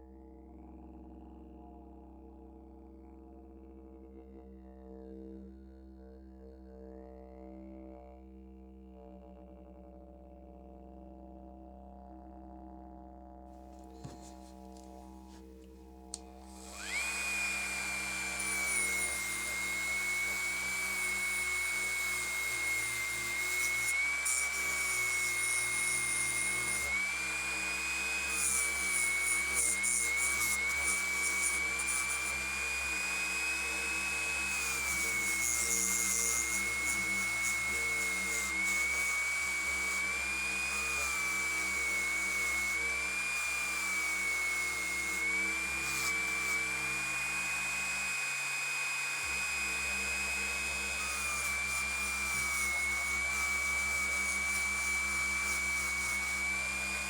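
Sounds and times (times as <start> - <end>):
rotary tool high whine: 14.0 - 15.4, 16.1 - 57.0.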